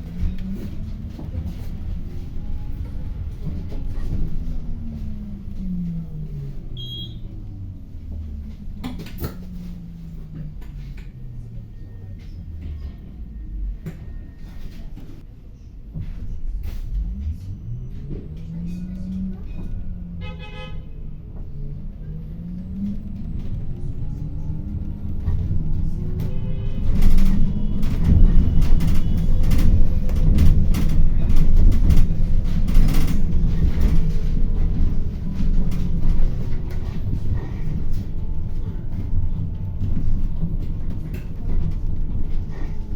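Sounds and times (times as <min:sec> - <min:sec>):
bus drivetrain hum: 0:00.0 - 0:42.9
brief high beep: 0:06.8 - 0:07.2
rattles and knocks: 0:22.7 - 0:42.9.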